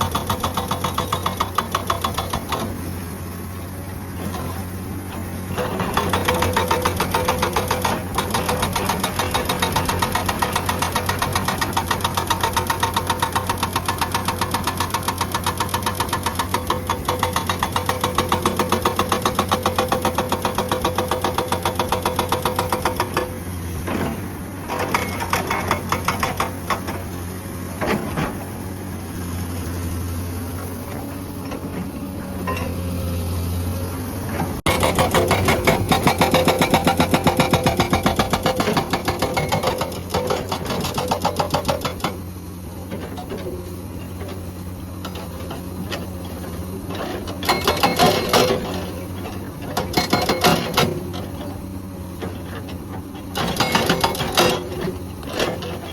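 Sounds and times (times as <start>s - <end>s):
hydraulic breaker hammering rock: 0.0s - 2.9s, 5.5s - 27.1s, 34.4s - 43.6s, 45.0s - 51.6s, 52.2s - 55.9s
excavator engine running: 0.0s - 55.9s.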